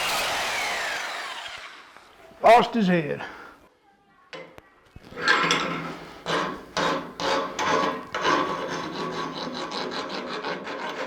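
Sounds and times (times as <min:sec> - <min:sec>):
hand tool scraping steel: 0:05.1 - 0:11.0.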